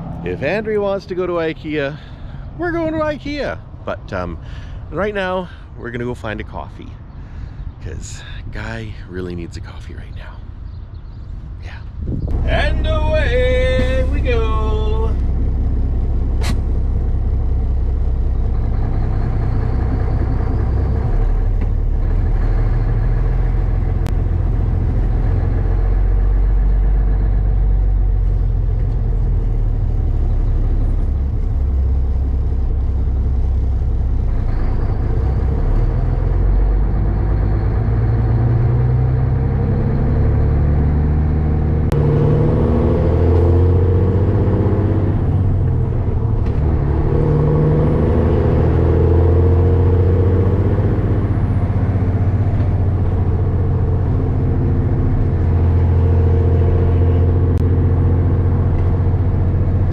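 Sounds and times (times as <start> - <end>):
truck diesel engine running: 12.3 - 59.9.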